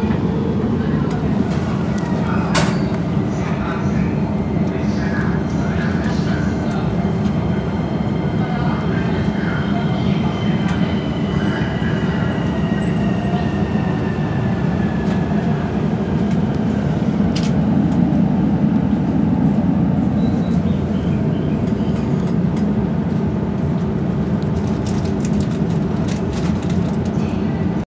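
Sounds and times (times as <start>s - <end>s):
train wheels rumbling: 0.0s - 27.8s.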